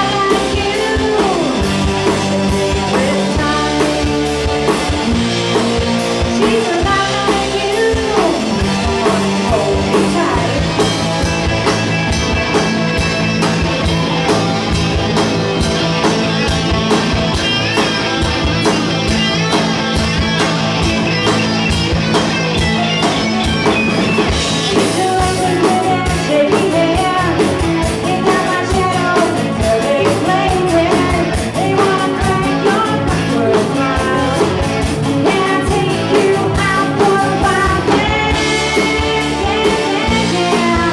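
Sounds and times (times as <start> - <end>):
person singing: 0.0 - 4.4, 6.2 - 10.8, 24.7 - 40.9
electric guitar: 0.0 - 40.9.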